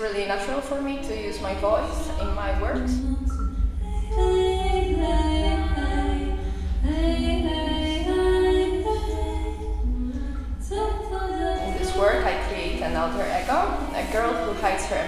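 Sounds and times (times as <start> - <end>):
woman singing a cappella: 0.0 - 15.0.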